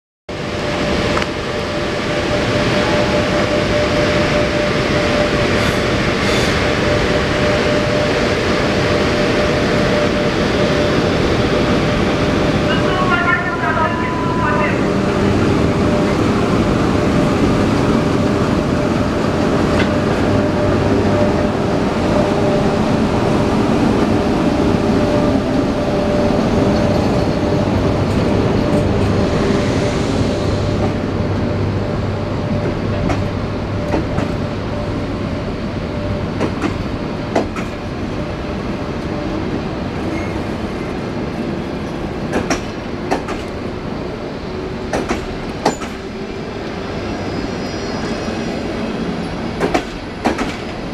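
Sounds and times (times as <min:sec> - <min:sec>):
electric locomotive hum: 0:00.3 - 0:50.9.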